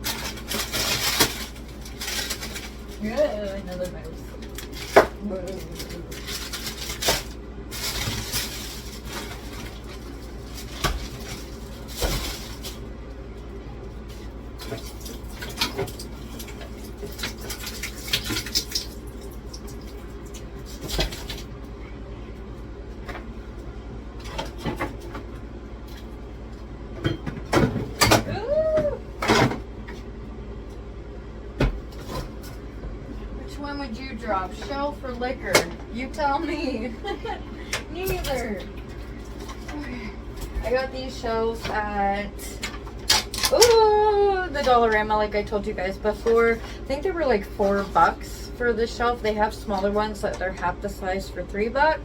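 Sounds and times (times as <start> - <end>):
frozen packages knocking and clunking: 0.0 - 12.9.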